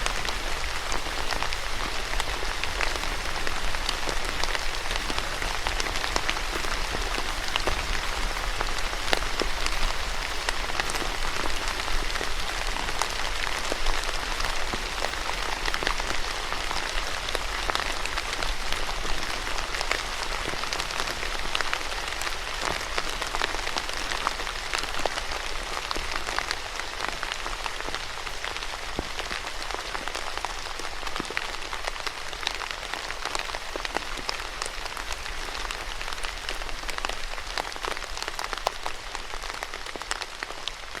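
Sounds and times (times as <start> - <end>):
rain pattering on a surface: 0.0 - 41.0.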